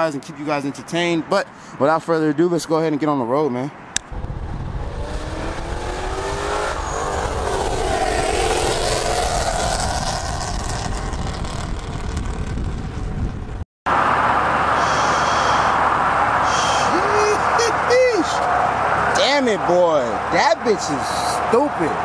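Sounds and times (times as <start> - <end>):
road and wind noise: 0.0 - 22.0
car engine accelerating: 4.1 - 16.9.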